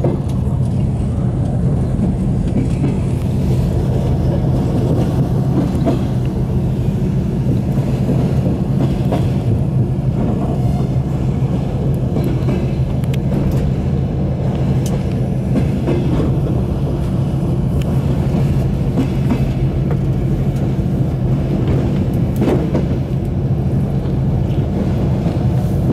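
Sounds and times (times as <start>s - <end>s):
train carriage low rumble: 0.0s - 25.9s.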